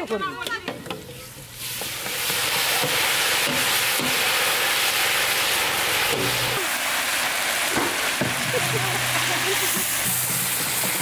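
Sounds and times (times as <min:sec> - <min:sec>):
food sizzling in hot oil: 0:00.8 - 0:11.0.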